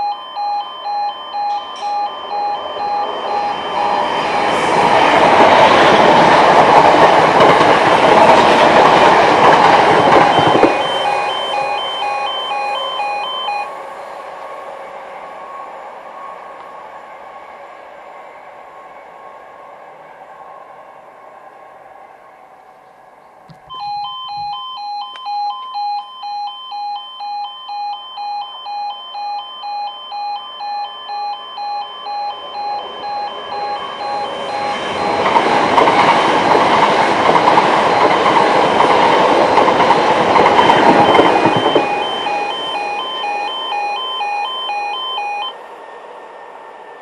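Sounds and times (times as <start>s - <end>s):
level crossing two-tone alarm: 0.0s - 13.9s, 23.7s - 45.6s
train rushing past: 0.3s - 24.8s, 29.6s - 47.0s.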